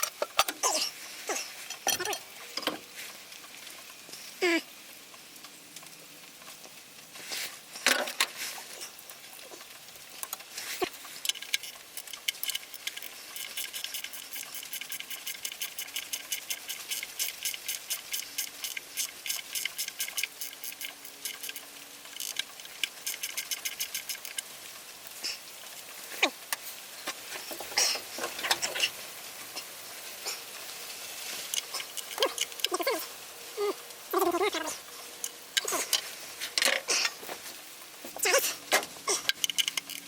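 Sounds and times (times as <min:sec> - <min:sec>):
rapid light ratchet clicking: 0:10.1 - 0:24.6, 0:31.4 - 0:32.8, 0:39.1 - 0:40.0.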